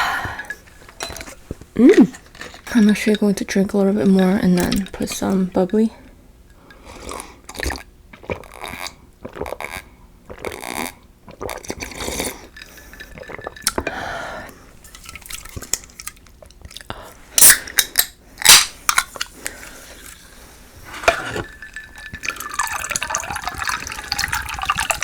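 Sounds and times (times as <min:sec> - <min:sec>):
gulping and swallowing: 0:07.1 - 0:12.4.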